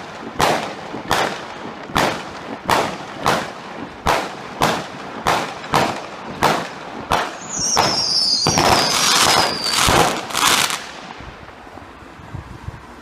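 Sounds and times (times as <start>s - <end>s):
fireworks bangs: 0.0s - 11.9s
fireworks crackling: 0.0s - 13.0s
firework whistle sliding down: 7.4s - 10.8s.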